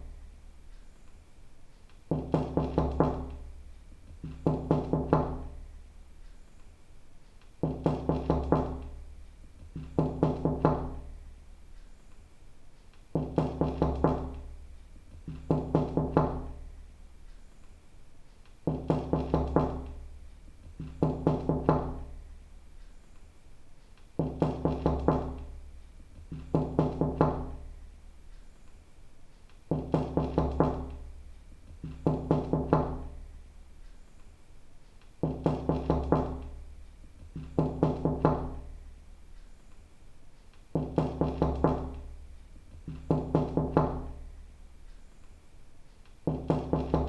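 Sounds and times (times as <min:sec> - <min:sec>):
knocking on a door: 0:02.1 - 0:05.6, 0:07.6 - 0:11.2, 0:13.1 - 0:16.7, 0:18.6 - 0:22.2, 0:24.2 - 0:27.8, 0:29.7 - 0:33.3, 0:35.2 - 0:38.8, 0:40.7 - 0:44.3, 0:46.2 - 0:47.0.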